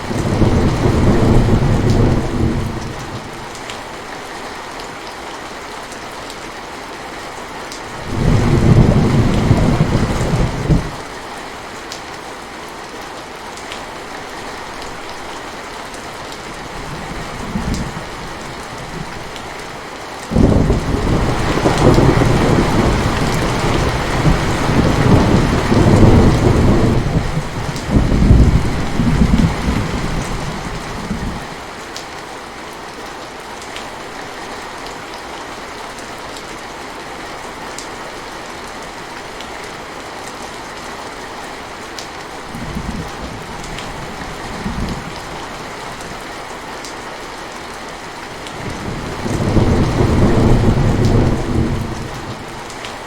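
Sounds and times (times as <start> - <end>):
steady rain: 0.0 - 53.0
rolling thunder: 0.1 - 3.2, 8.0 - 11.0, 20.3 - 31.5, 48.6 - 52.6.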